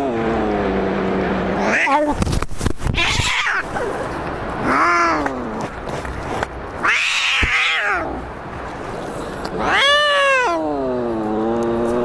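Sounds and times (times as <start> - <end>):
cats yowling in a fight: 3.0 - 3.9, 4.6 - 5.3, 6.8 - 8.2, 9.6 - 10.6.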